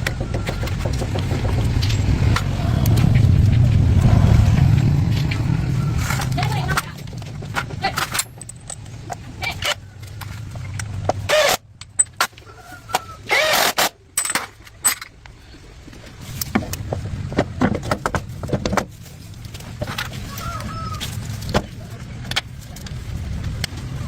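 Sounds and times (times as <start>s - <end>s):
metal clinking and knocking: 6.0s - 9.3s.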